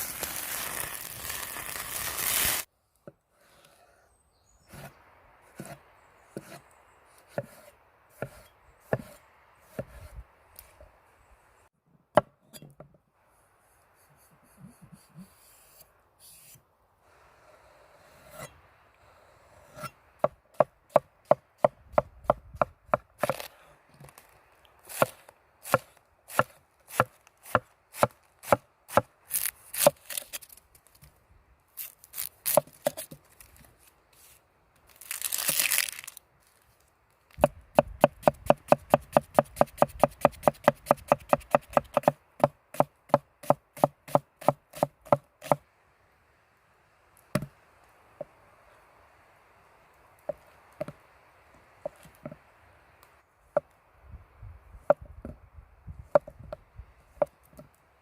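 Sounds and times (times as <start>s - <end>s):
knife chopping on wooden board: 8.2s - 10.1s, 24.9s - 29.1s, 37.4s - 45.6s.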